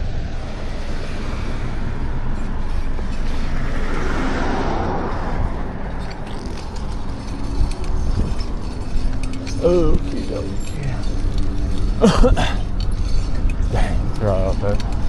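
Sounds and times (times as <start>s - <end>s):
car passing close by: 0.0s - 8.8s
wind rumble on microphone: 0.0s - 12.0s.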